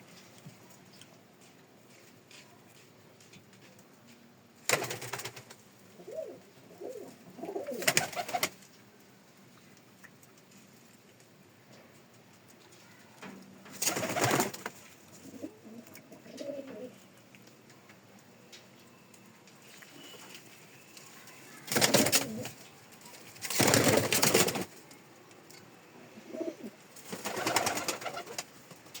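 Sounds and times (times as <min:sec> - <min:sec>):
pigeons cooing: 0:06.0 - 0:08.5, 0:15.2 - 0:17.0, 0:21.7 - 0:22.6, 0:26.2 - 0:28.4
loud rustling bursts: 0:23.2 - 0:24.8.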